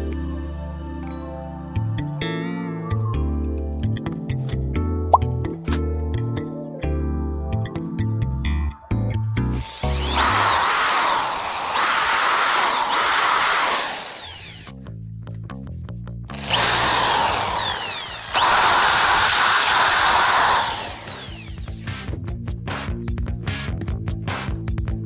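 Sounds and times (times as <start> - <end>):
power drill whirring: 9.6 - 14.7, 16.4 - 22.0.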